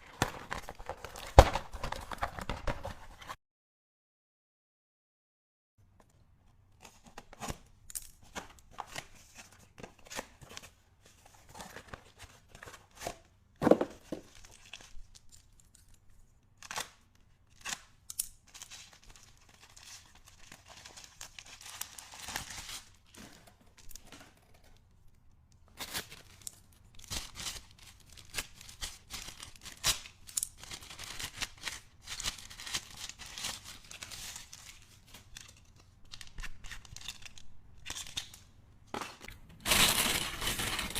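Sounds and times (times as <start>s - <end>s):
packaging crinkling and tearing: 0.0s - 3.3s, 16.6s - 24.8s, 25.7s - 38.4s, 39.3s - 40.9s.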